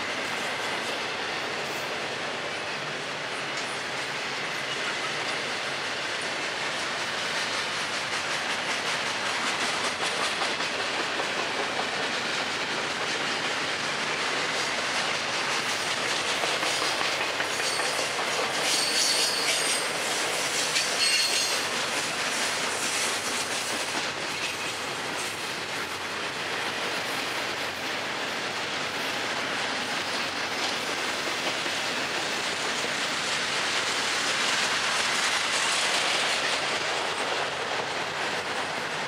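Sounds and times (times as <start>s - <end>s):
freight train rumbling past: 0.0s - 39.0s
high-pitched wheel squeal: 21.0s - 21.5s.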